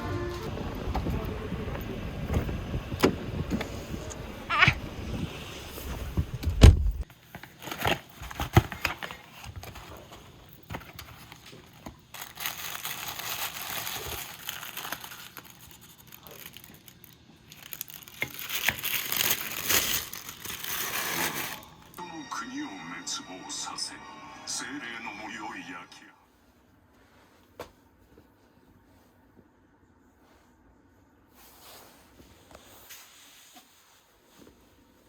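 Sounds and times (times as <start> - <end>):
bag crinkling and rustling: 7.1 - 22.0.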